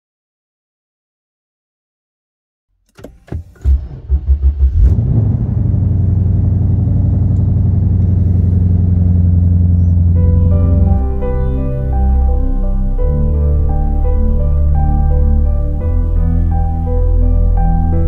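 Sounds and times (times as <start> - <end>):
engine cranking: 2.9 - 5.4
car engine idling: 3.0 - 18.0.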